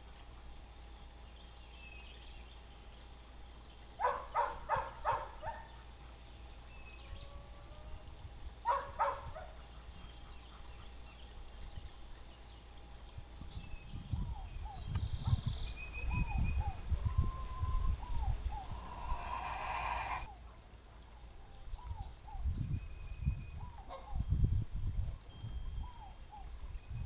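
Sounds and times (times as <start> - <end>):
birds chirping and whistling: 8.7 - 20.3.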